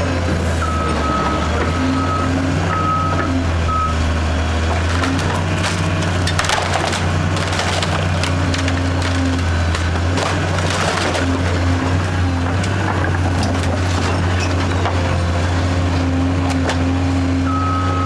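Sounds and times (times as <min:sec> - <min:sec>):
diesel engine running: 0:00.0 - 0:18.0
backup alarm beeping: 0:00.6 - 0:04.2, 0:17.5 - 0:18.0
timber cracking and splintering: 0:04.4 - 0:16.9.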